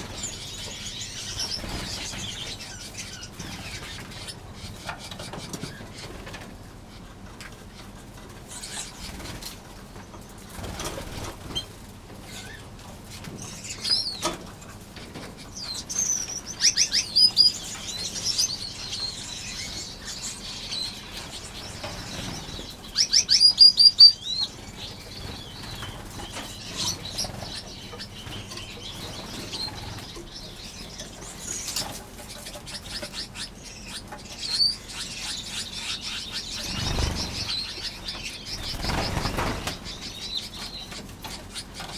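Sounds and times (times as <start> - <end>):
finches chirping: 0.0 - 7.0, 7.7 - 9.5, 12.3 - 41.9
small wings fluttering: 36.6 - 40.1.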